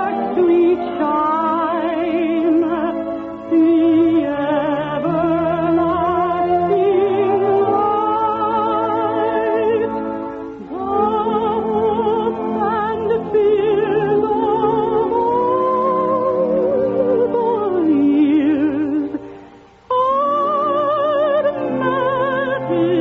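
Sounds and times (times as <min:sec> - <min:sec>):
orchestral accompaniment: 0:00.0 - 0:23.0
person singing with vibrato: 0:00.0 - 0:23.0.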